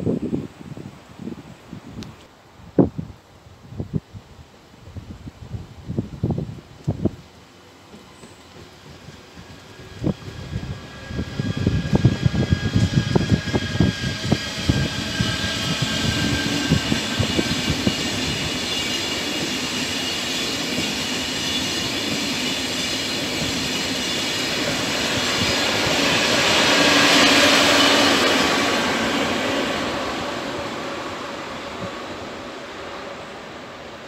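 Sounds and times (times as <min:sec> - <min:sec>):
train rushing hiss: 0:07.0 - 0:34.0.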